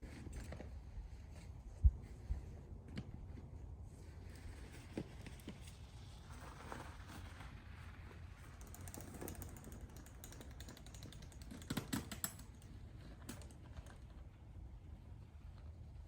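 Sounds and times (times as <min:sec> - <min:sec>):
light mechanical clicking: 0:08.5 - 0:14.2.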